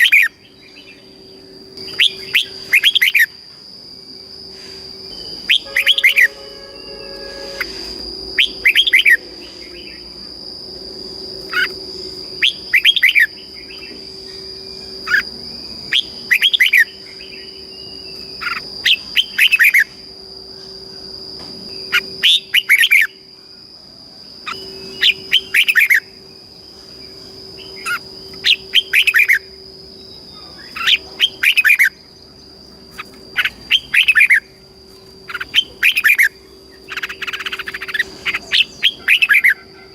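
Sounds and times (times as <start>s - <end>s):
bird singing whistled notes: 0.0s - 3.4s, 5.0s - 10.2s, 11.4s - 19.9s, 21.7s - 23.3s, 24.4s - 39.9s
faint high tone: 5.6s - 8.1s.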